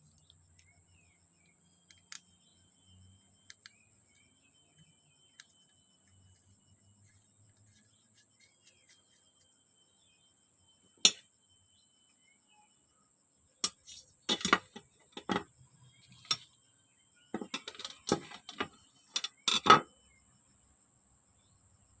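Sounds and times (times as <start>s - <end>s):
small metal parts clicking: 17.4s - 19.8s.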